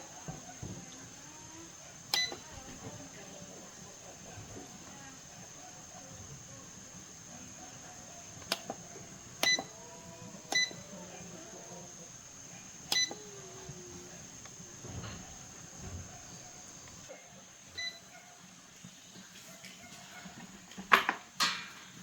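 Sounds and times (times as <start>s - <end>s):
button clicks: 2.1s - 2.5s, 9.4s - 9.7s, 12.9s - 13.2s.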